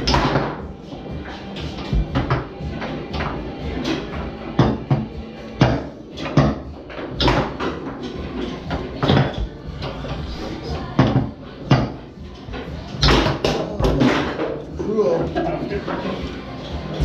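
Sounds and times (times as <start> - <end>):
foosball ball knocks: 0.0 - 0.6, 1.7 - 2.5, 3.1 - 8.0, 13.0 - 14.6.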